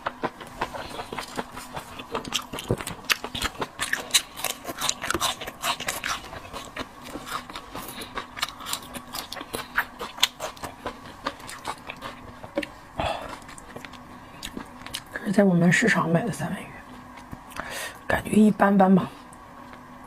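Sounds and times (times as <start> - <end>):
chewing seafood: 0.0 - 15.2.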